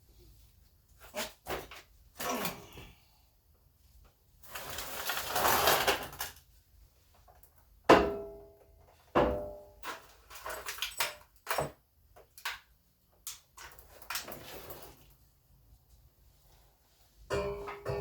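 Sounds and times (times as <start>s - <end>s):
metal parts clanking: 9.8s - 11.7s.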